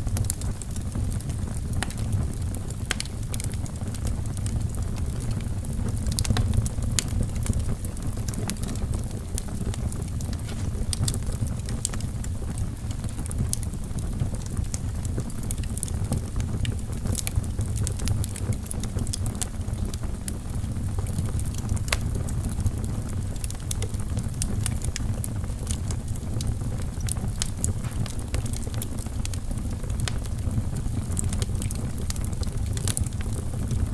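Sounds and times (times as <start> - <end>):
flames rumbling: 0.0 - 33.9
logs popping and snapping: 2.8 - 3.6, 8.2 - 12.0, 27.0 - 29.4.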